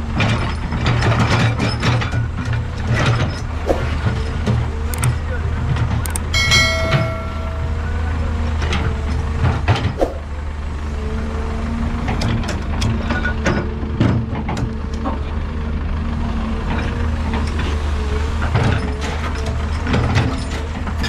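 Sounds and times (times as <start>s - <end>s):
heavy diesel machinery droning: 0.0s - 21.0s
metallic clanks and knocks: 5.8s - 8.9s.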